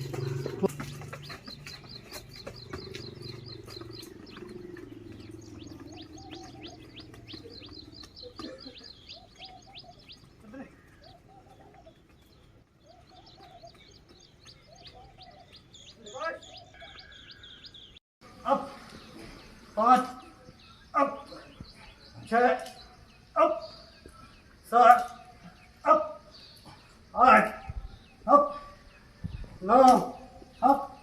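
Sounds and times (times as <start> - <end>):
small birds chirping: 0.0 - 31.0
lower arched bird call: 1.4 - 10.3.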